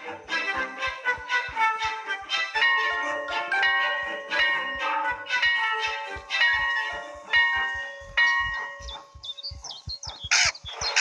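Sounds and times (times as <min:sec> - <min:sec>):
bell-like chimes: 0:02.6 - 0:09.8
soft low knocks: 0:06.2 - 0:11.0
high bird-like chirps: 0:07.7 - 0:11.0.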